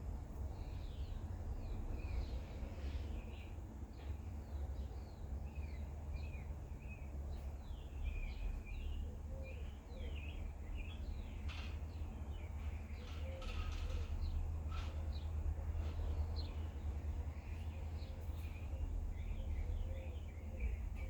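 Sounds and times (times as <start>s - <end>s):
small birds chirping: 0.0s - 21.0s
steady low rumble: 13.8s - 21.0s.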